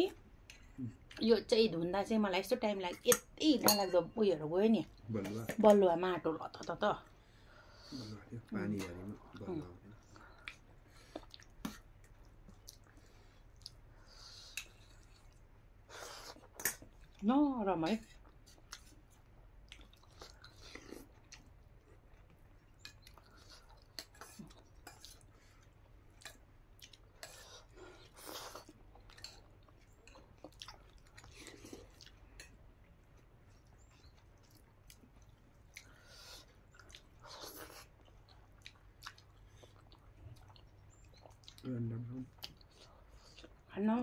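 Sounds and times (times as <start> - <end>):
person chewing with mouth smacks: 8.8 - 17.2, 18.2 - 43.7.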